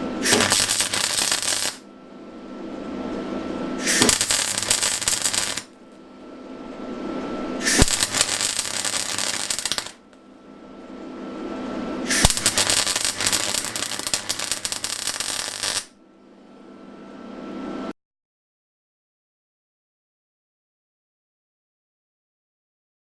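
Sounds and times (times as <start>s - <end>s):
welder arc crackling: 0.1s - 1.8s, 3.8s - 5.7s, 7.6s - 10.0s, 12.1s - 15.9s
sharp click of arc striking: 0.2s - 1.8s, 3.8s - 5.7s, 7.6s - 10.0s, 12.1s - 15.9s.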